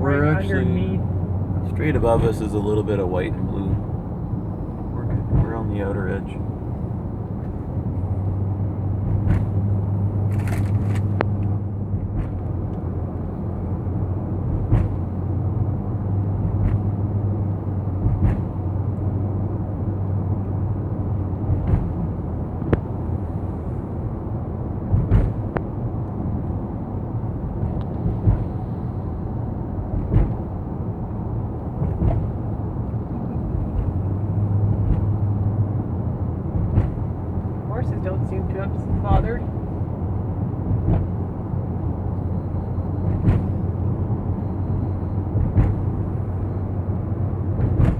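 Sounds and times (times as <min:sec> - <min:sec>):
car engine and road hum: 0:00.0 - 0:47.9.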